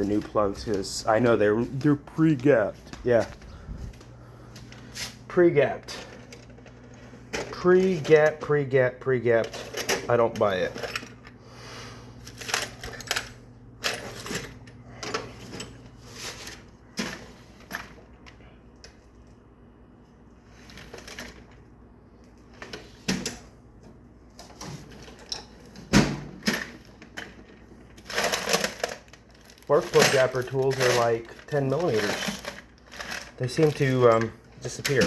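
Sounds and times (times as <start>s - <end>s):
hand tools clinking and knocking: 29.7s - 35.0s.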